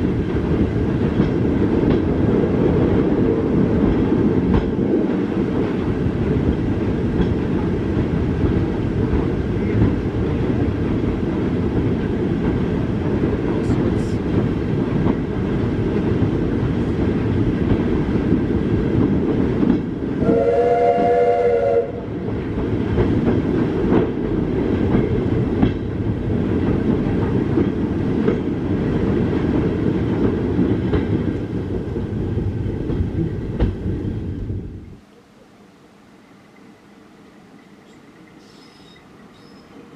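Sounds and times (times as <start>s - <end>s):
train rumbling on track: 0.0s - 39.9s
train horn chord: 20.2s - 22.0s.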